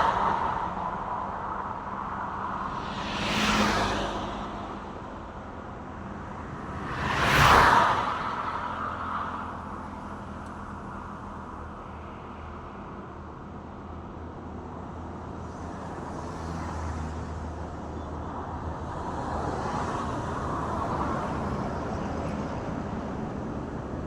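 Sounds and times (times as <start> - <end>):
road traffic hum and tyre noise: 0.0 - 24.0.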